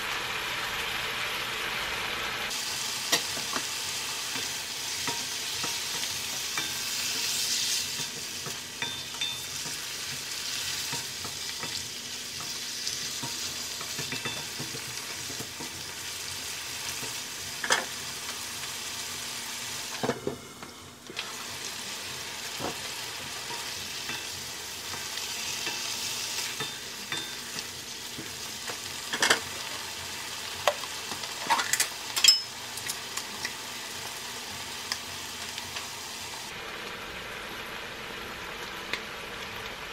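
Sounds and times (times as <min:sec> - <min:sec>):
chicken sizzling in oil: 0:00.0 - 0:39.9.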